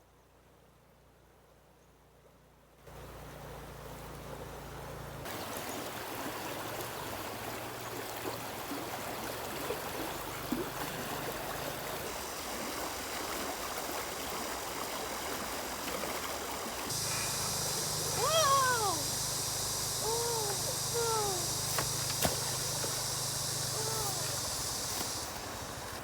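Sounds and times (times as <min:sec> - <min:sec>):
water flowing and trickling: 0:03.0 - 0:26.0
small splashes and drips: 0:05.2 - 0:26.0.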